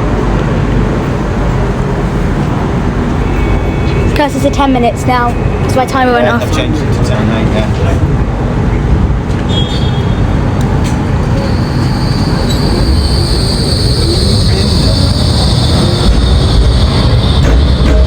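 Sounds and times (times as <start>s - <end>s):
tram rumbling: 0.0s - 18.0s
high wheel squeal: 9.4s - 10.5s, 11.2s - 18.0s.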